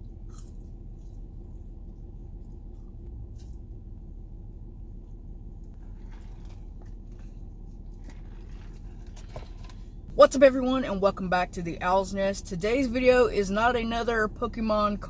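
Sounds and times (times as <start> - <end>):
chewing food: 0.0 - 4.1, 5.0 - 9.9
steady low hum: 0.0 - 15.0.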